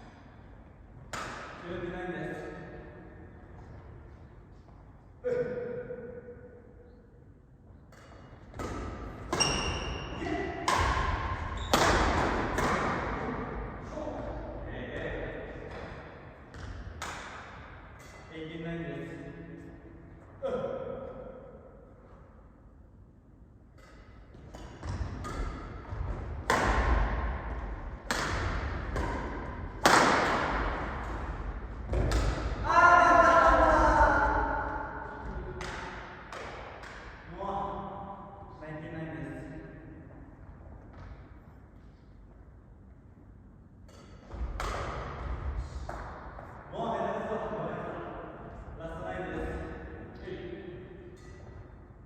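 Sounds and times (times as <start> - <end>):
racket hitting shuttlecock: 1.0 - 1.6, 7.9 - 13.7, 15.7 - 18.3, 23.7 - 32.8, 33.5 - 37.3, 43.8 - 46.6.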